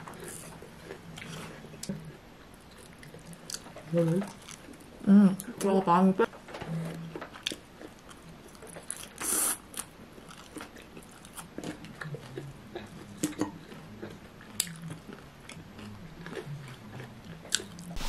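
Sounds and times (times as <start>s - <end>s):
chewing and biting crunchy food: 0.0s - 5.0s, 6.6s - 18.0s.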